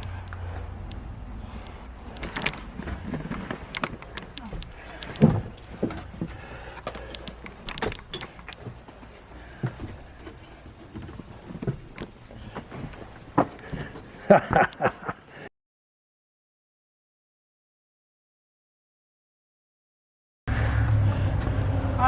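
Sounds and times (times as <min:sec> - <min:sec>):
wooden boards creaking: 0:00.0 - 0:14.9
footsteps on wooden boards: 0:00.0 - 0:15.4.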